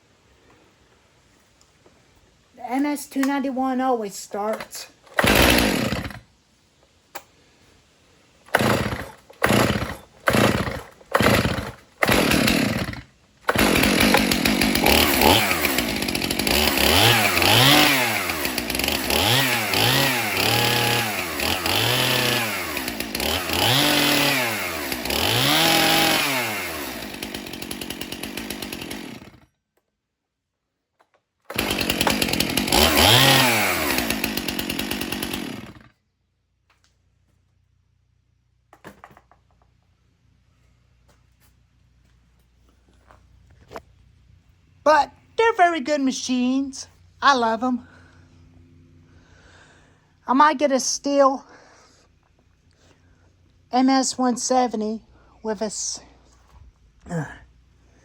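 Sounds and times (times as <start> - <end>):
chainsaw pull cord: 4.4 - 6.3, 8.5 - 29.5, 31.5 - 35.9
chainsaw revving: 4.4 - 6.3, 8.5 - 29.5, 31.5 - 35.9.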